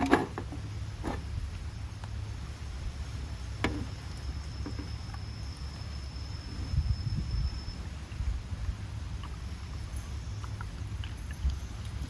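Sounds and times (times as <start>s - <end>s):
low outdoor rumble: 0.0s - 12.0s
faint high steady tone: 3.6s - 8.3s.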